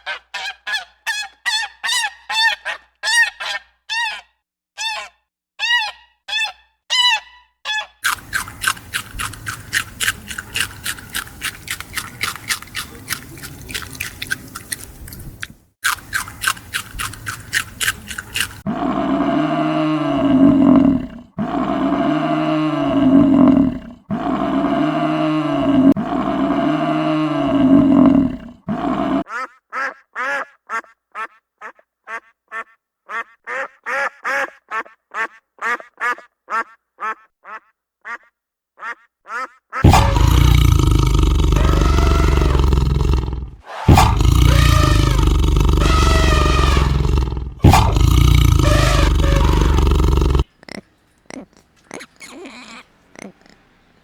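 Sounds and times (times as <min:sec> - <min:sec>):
long deep animal calls: 0:18.6 - 0:53.8.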